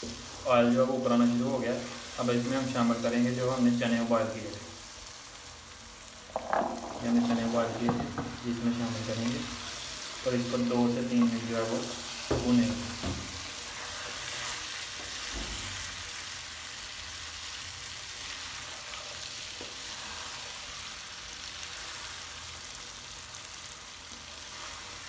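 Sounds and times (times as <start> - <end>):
chickpeas sizzling in a pan: 0.0 - 25.0
wooden spatula stirring: 6.2 - 15.3.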